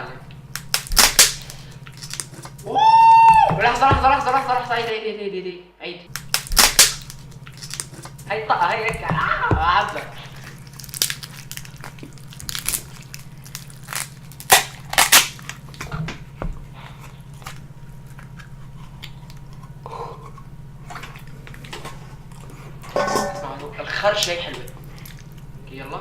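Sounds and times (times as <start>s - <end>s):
steady low hum: 0.0s - 26.0s
crunching bites of crisp food: 0.5s - 2.8s, 6.1s - 15.9s, 24.6s - 25.6s.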